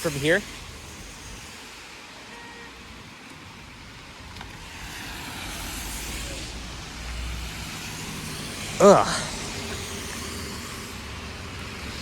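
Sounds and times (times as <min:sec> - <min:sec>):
car tyres hissing on wet road: 0:00.0 - 0:12.0.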